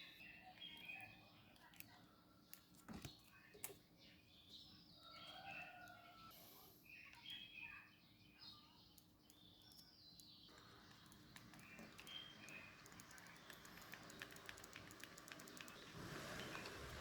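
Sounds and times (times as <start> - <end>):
faint bird chirps: 0.0 - 17.0
light ticks: 9.0 - 17.0.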